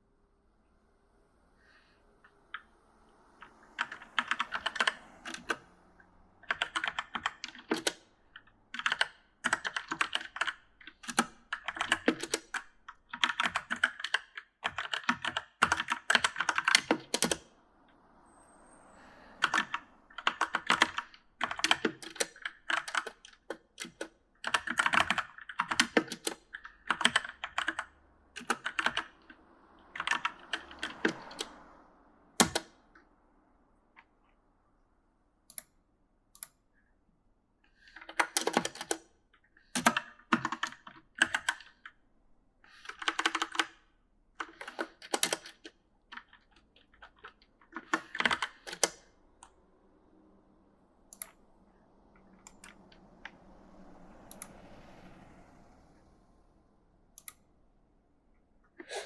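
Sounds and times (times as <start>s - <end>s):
mechanical keyboard typing: 3.4s - 5.6s, 6.4s - 17.5s, 19.4s - 29.2s, 29.9s - 31.6s, 32.4s - 32.7s, 37.8s - 39.0s, 39.6s - 42.0s, 42.7s - 43.8s, 44.4s - 49.6s, 52.4s - 53.0s.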